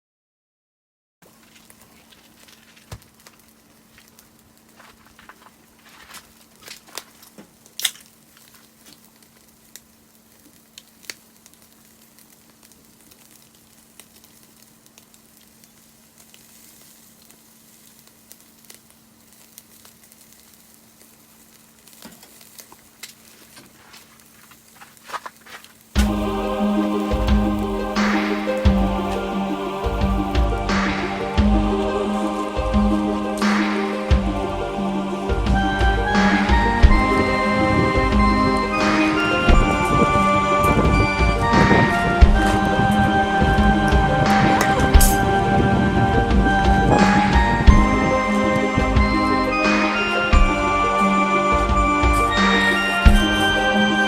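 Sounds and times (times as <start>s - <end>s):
wood fire popping and crackling: 1.2s - 54.0s
food sizzling in a pan: 7.2s - 31.0s.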